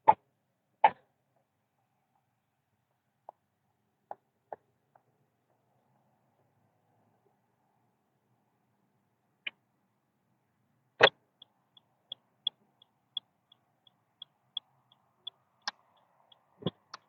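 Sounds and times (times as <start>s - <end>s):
turn signal ticking: 11.4s - 17.0s.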